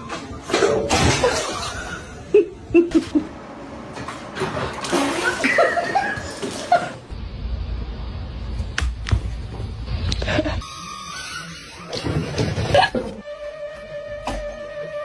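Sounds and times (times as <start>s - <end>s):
person laughing: 1.4s - 3.3s, 5.1s - 7.0s, 12.3s - 13.2s.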